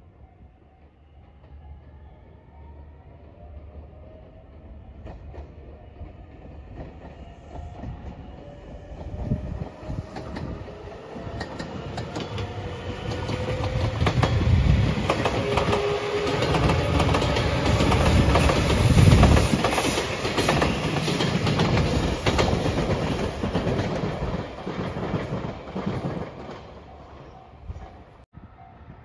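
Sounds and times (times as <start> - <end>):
electric train passing: 0.0 - 29.0
wheels clacking over rail joints: 10.1 - 27.4.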